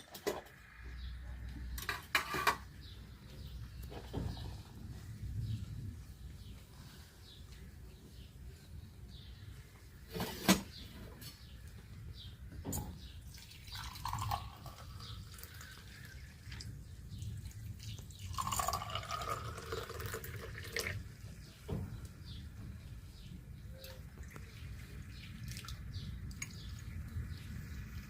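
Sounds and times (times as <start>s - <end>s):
water dripping and trickling: 13.1s - 22.2s, 23.8s - 28.0s.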